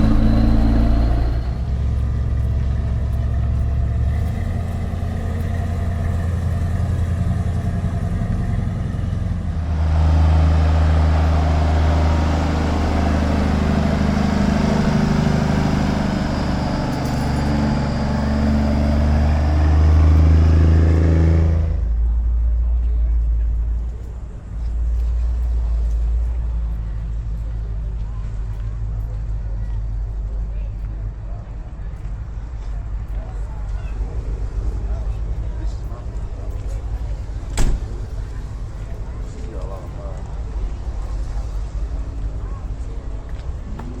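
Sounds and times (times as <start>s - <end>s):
loud engine: 0.0s - 30.4s
vehicle engines running: 0.0s - 44.0s.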